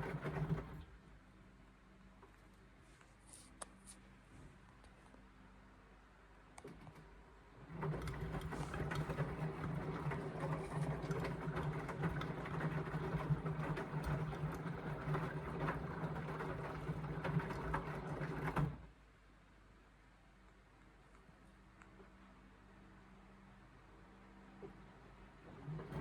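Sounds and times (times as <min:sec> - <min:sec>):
washing machine motor hum: 0:00.0 - 0:01.0, 0:07.6 - 0:19.0, 0:25.4 - 0:26.0
load tumbling and clicking: 0:07.7 - 0:18.8.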